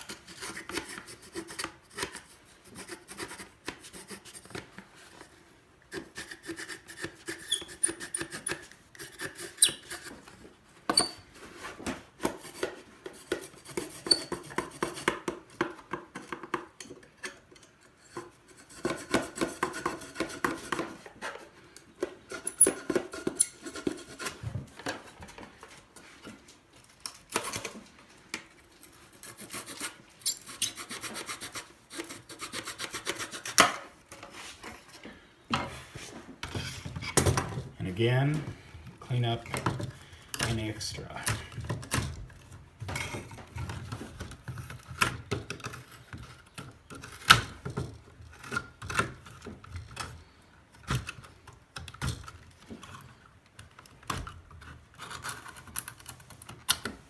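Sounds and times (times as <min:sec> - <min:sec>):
handsaw cutting wood: 0:06.0 - 0:10.1.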